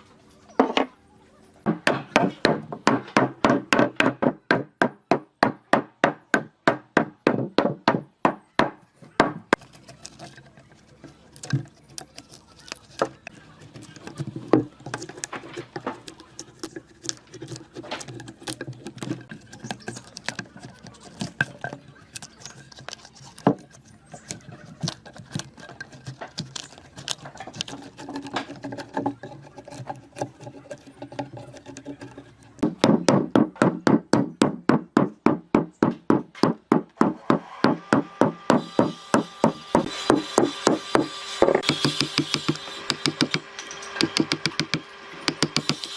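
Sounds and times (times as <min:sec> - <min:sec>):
hammer strikes on wood: 0:01.7 - 0:09.6, 0:32.6 - 0:43.4, 0:44.0 - 0:45.9
wooden pieces knocking and clicking: 0:08.6 - 0:37.1, 0:38.6 - 0:45.9.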